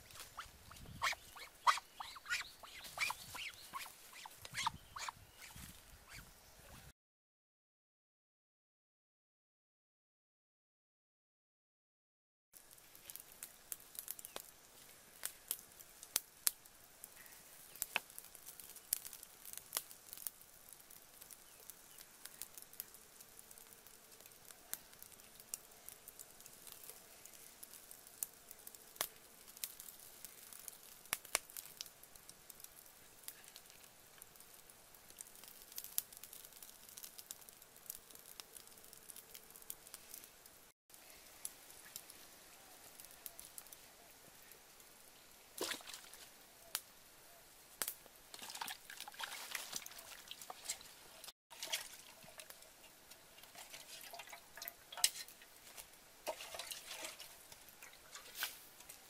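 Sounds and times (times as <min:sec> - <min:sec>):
fire crackling and popping: 0:00.0 - 0:06.2, 0:12.6 - 0:43.9, 0:47.7 - 0:59.0
water splashing and dripping: 0:45.6 - 0:46.3, 0:48.3 - 0:58.4.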